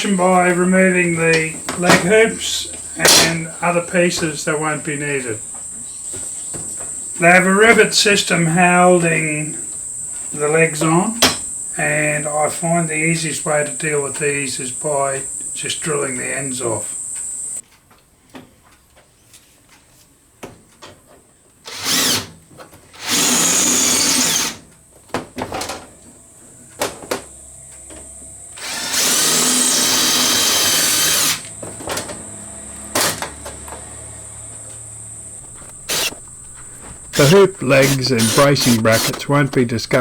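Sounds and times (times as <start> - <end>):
power drill drilling metal: 21.7 - 22.3, 23.0 - 24.6, 28.6 - 31.5, 35.4 - 40.0.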